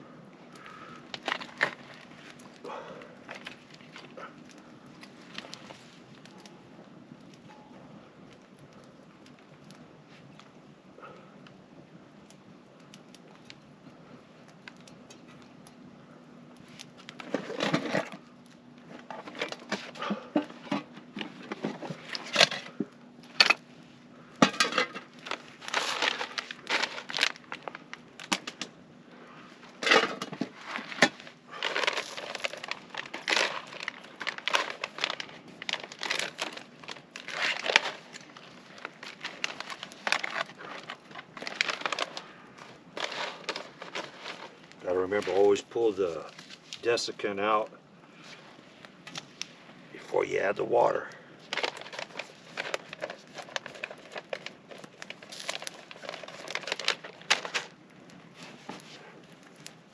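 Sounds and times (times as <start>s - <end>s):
foil pouch crinkling: 24.5s - 28.6s, 29.6s - 46.9s, 51.4s - 59.9s.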